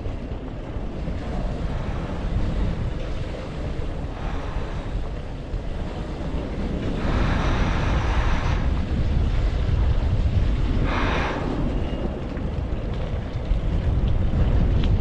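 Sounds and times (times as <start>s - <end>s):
wind buffeting a microphone: 0.0s - 15.0s
hiss: 7.0s - 8.7s, 10.8s - 11.6s.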